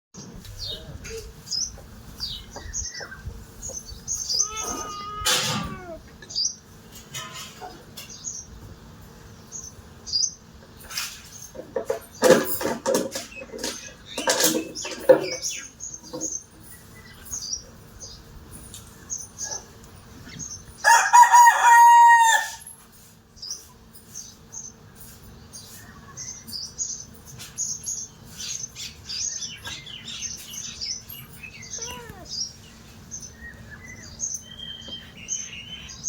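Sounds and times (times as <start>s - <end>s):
harsh chicken calls: 4.3s - 6.1s, 20.8s - 22.7s.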